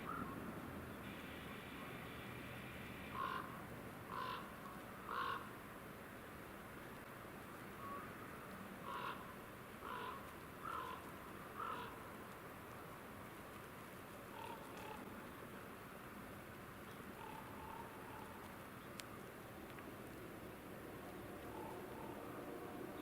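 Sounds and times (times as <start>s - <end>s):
bird harsh calls: 3.1s - 4.5s.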